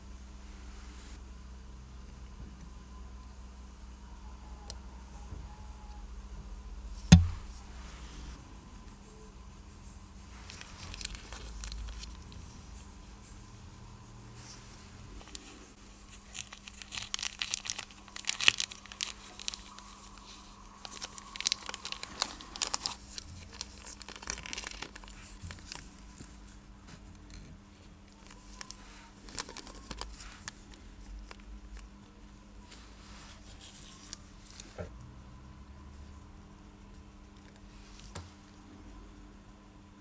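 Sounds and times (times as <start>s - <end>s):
crinkly scrapes: 10.3s - 12.8s, 14.4s - 27.5s, 28.2s - 31.4s.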